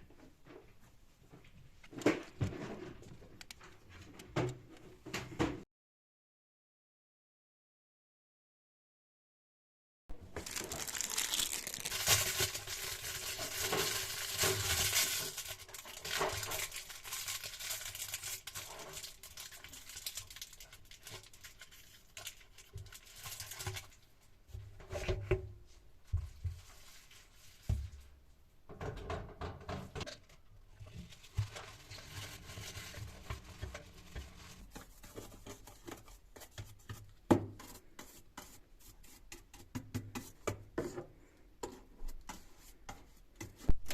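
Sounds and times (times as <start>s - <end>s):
packaging rustling and tearing: 10.2s - 23.9s.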